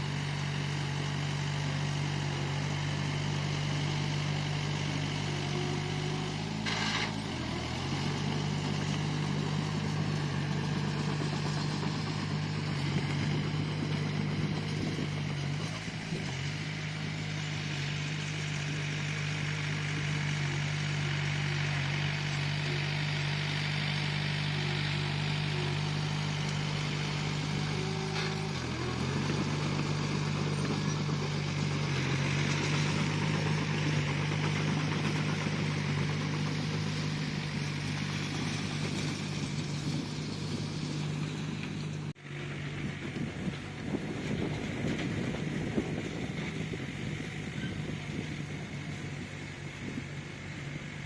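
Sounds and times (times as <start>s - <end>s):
bulldozer diesel engine running: 0.0s - 51.0s.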